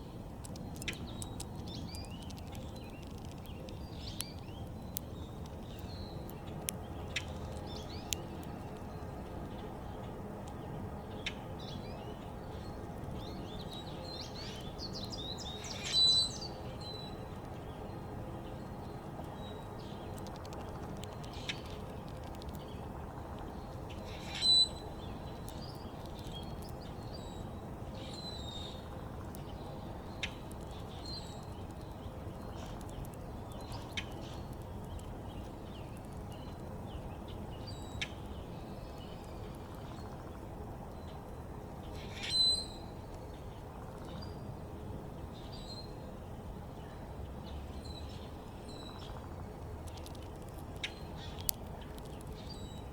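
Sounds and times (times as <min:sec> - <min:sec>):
outdoor background hiss: 0:00.0 - 0:52.9
songbirds chirping: 0:00.0 - 0:52.9.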